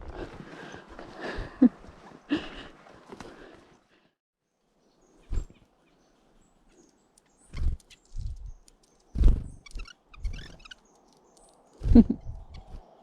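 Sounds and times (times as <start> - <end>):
high-pitched bird chirps: 9.5 - 10.8
soft low thumps: 11.9 - 12.7.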